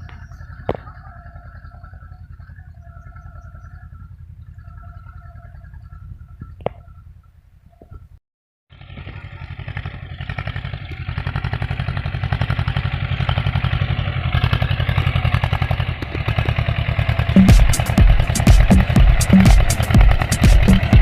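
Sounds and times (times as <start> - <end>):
tractor diesel engine chugging: 0.0 - 6.4, 8.7 - 21.0
music with heavy beat: 17.4 - 21.0.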